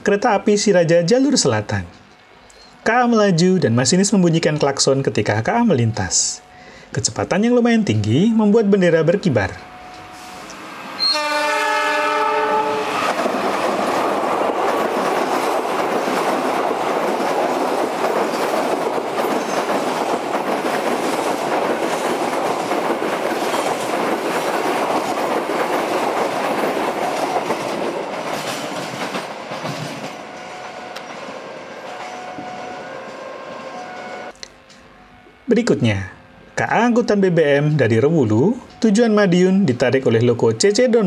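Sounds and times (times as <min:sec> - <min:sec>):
train passing with clickety-clack: 0:11.8 - 0:34.3.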